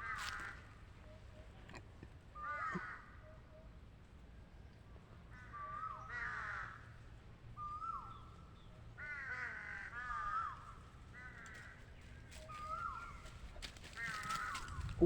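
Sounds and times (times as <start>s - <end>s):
bird calling: 5.3s - 7.0s, 7.6s - 15.0s.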